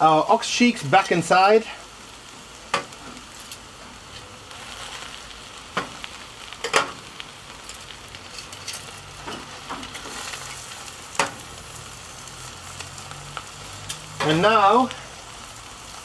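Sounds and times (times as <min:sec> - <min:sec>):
meat and vegetables sizzling: 0:00.0 - 0:16.0
metal tongs clinking on pot: 0:07.6 - 0:10.6.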